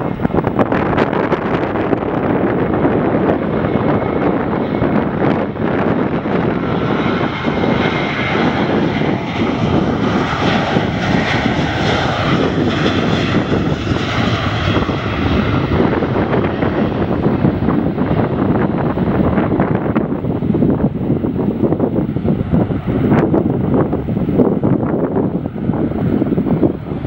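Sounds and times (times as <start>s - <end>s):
jet airliner engines whine: 0.0s - 27.0s
wind buffeting microphone: 0.0s - 27.0s.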